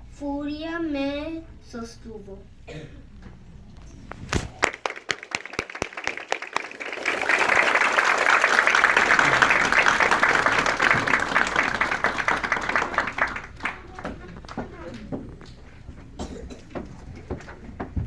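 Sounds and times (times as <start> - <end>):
audience applauding: 4.6 - 15.6.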